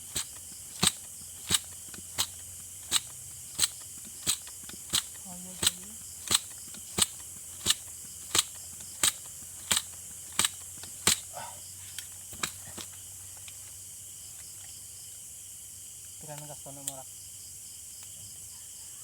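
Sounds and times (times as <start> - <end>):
air rifle pump clicks: 0.0 - 11.3, 11.9 - 13.6
night insects humming: 0.0 - 19.0.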